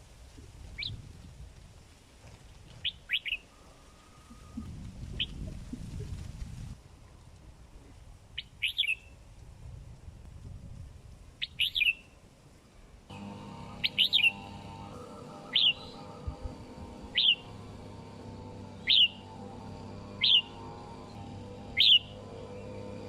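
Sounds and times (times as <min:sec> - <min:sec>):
bird giving sharp calls: 0:13.4 - 0:17.9, 0:18.6 - 0:19.5, 0:20.1 - 0:20.8, 0:21.7 - 0:22.8.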